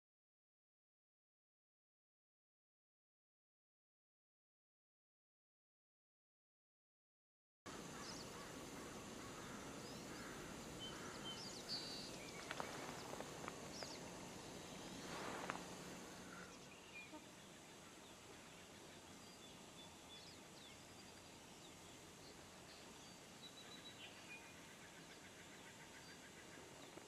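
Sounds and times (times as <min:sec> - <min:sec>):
low steady hiss: 0:07.7 - 0:27.0
small birds chirping: 0:07.7 - 0:27.0.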